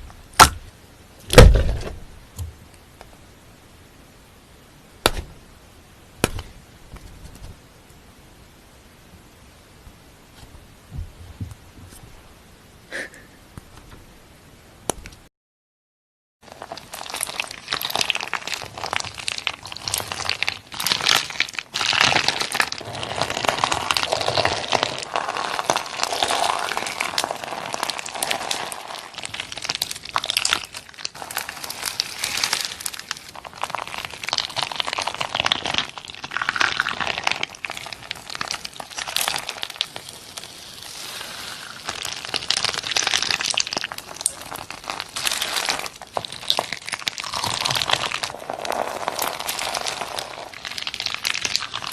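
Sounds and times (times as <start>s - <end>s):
slime crackling: 16.5s - 51.9s.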